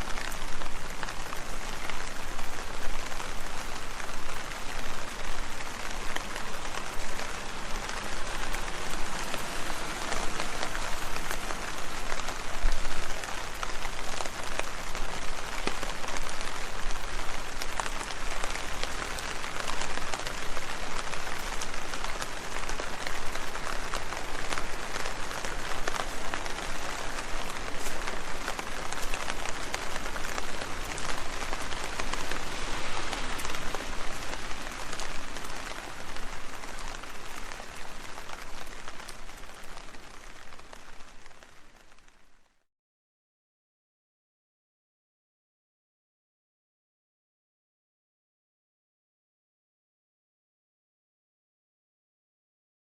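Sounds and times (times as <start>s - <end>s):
rain pattering on leaves: 0.0s - 42.6s.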